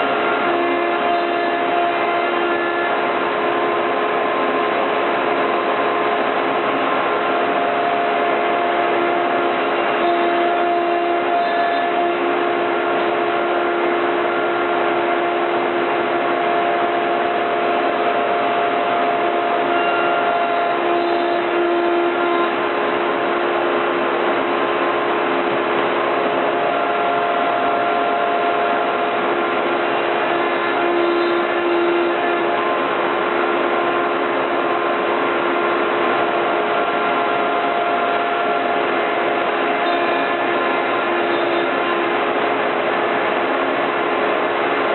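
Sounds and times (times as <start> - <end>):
router cutting wood: 0.0 - 4.4, 7.5 - 22.7, 26.2 - 34.7, 36.4 - 42.2
rush of cutting noise: 0.0 - 4.4, 24.2 - 43.4
router spindle whine: 0.0 - 44.9.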